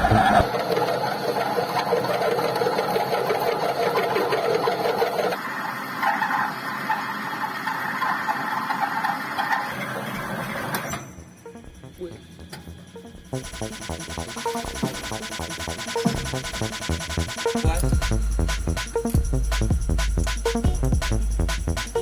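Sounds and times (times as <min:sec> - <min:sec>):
metal lathe whirring: 0:00.0 - 0:11.4.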